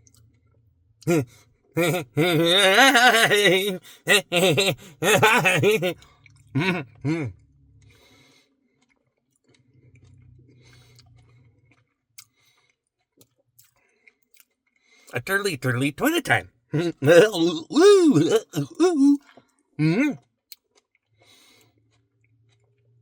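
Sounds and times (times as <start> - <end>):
man's wordless voice: 1.8 - 6.0, 6.6 - 7.3, 15.1 - 19.2, 19.8 - 20.2
short vocal sounds: 1.8 - 6.0, 6.6 - 7.3, 15.2 - 19.2, 19.8 - 20.2.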